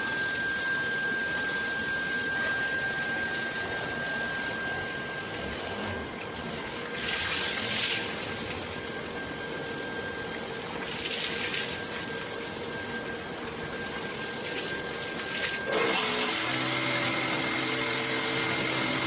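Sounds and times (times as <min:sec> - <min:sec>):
steady machine tone: 0:00.0 - 0:19.0.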